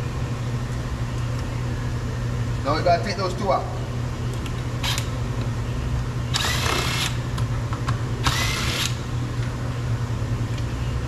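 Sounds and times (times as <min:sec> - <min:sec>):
steady low hum: 0:00.0 - 0:11.0
power drill whining: 0:06.3 - 0:07.2, 0:08.2 - 0:09.0.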